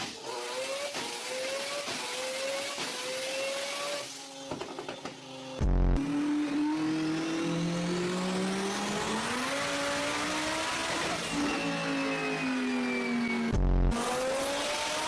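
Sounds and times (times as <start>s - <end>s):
car engine accelerating: 5.6s - 15.0s.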